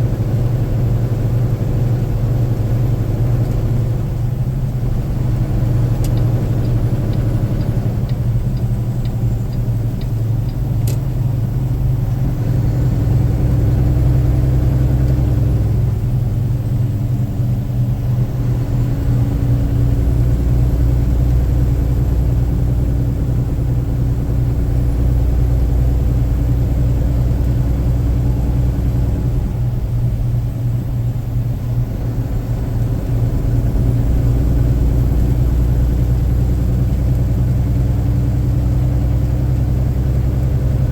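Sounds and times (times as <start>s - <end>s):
car driving on wet road: 0.1s - 40.9s
click: 5.9s - 11.1s
light ticks: 5.9s - 11.1s.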